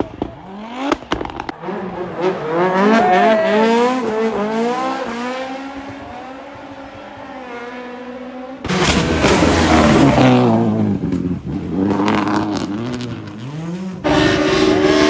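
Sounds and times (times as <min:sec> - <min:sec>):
rally car engine revving: 0:00.0 - 0:15.0
loud engine sound: 0:08.7 - 0:15.0.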